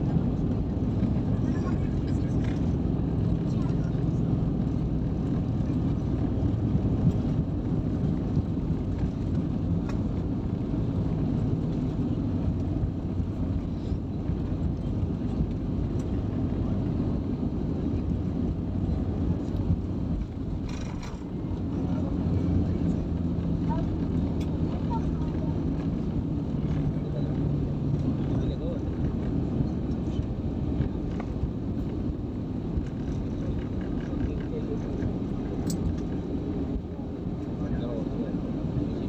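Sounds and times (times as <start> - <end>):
airliner cabin engine rumble: 0.0 - 39.0.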